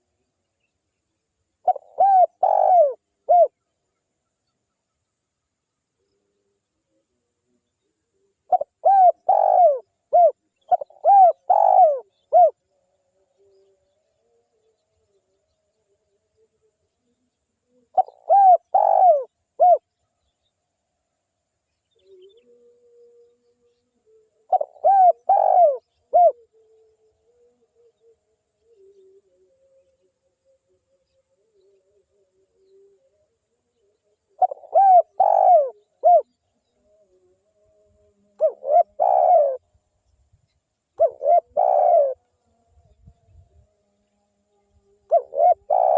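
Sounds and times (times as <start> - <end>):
dove cooing: 1.6 - 3.6, 8.4 - 12.7, 17.9 - 19.8, 24.5 - 26.7, 34.4 - 36.3, 38.4 - 39.6, 41.0 - 42.2, 45.1 - 45.9.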